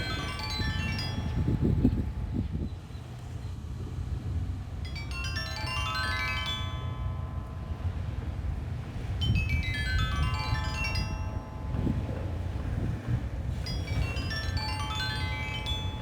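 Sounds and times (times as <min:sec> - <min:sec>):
stone xylophone bell-like notes: 0:00.0 - 0:01.9, 0:04.9 - 0:08.1, 0:09.2 - 0:12.2, 0:13.6 - 0:16.0
low wind noise: 0:00.0 - 0:16.0.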